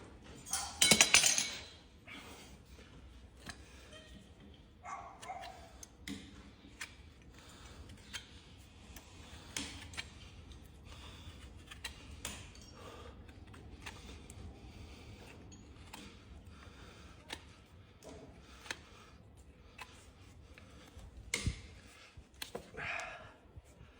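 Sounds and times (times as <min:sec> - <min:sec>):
hoof trimming clicks and snips: 0:03.4 - 0:10.7, 0:11.4 - 0:14.5, 0:15.1 - 0:22.7.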